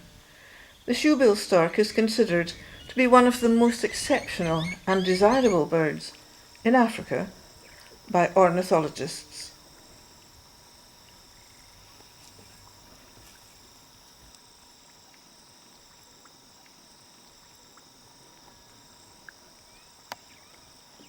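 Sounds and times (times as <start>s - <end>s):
insects chirping chorus: 0.0s - 21.0s
bird-like note: 2.4s - 5.8s
small ticks: 7.3s - 8.2s, 9.5s - 21.0s.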